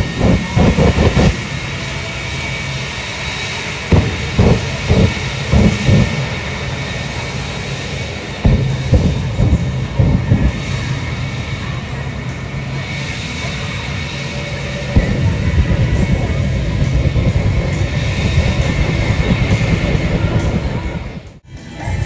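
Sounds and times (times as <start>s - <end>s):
jet engine afterburner pops: 0.0s - 1.5s, 3.9s - 6.9s, 8.4s - 10.7s
jet engine rumbling: 0.0s - 21.4s.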